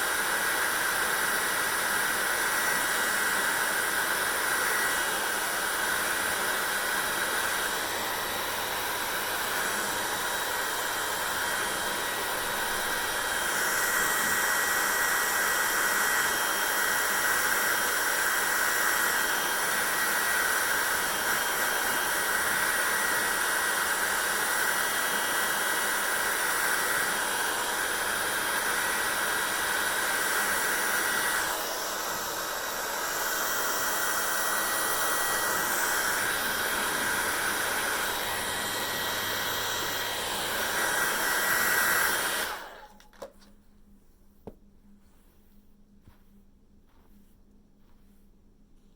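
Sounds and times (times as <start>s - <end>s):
hair dryer running: 0.0s - 43.5s.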